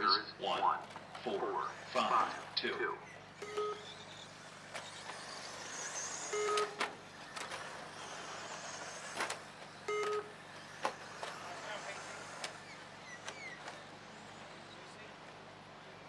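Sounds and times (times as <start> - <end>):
electric rc trucks whining: 0.0 - 16.0
short electronic beeps: 3.0 - 4.2, 6.3 - 6.8, 9.9 - 10.4.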